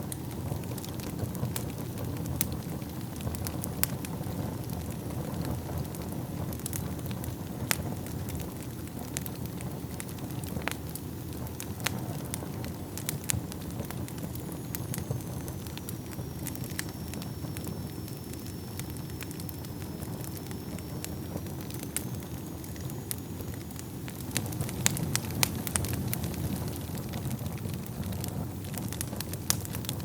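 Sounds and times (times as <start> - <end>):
fire crackling and popping: 0.0 - 30.0
low rumble of flames: 0.0 - 30.0
faint high whistle: 14.1 - 24.6.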